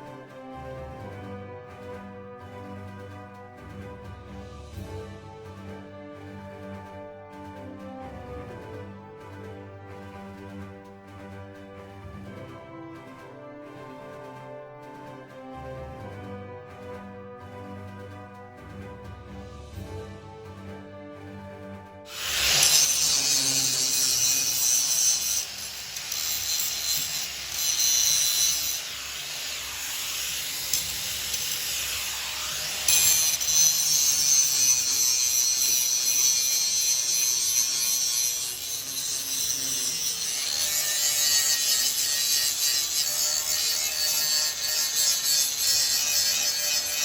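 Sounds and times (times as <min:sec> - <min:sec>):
power tool cutting sheet steel: 0:22.1 - 0:47.0.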